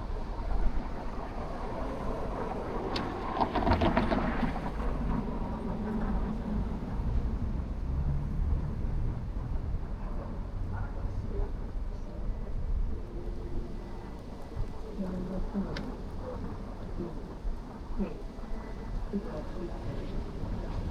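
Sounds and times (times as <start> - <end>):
traffic on wet street: 0.0 - 20.9
passing vehicle clattering: 1.4 - 11.3.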